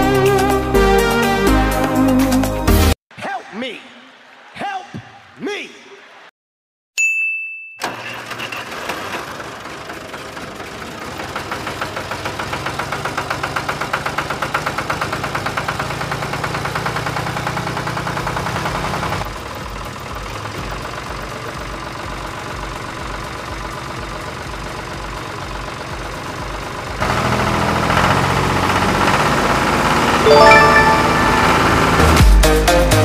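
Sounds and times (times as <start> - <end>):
tractor engine knocking: 7.9 - 29.9.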